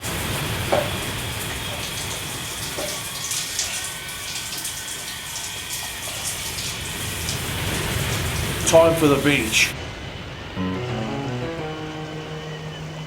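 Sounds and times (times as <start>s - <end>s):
rushing water: 0.0s - 9.8s.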